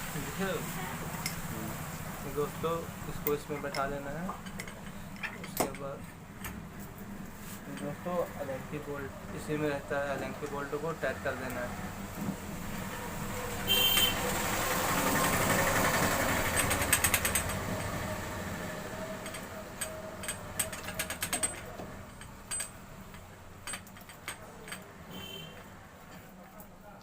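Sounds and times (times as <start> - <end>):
broad mechanical noise: 0.0 - 27.0
tool clicking on metal bolt: 19.2 - 25.3.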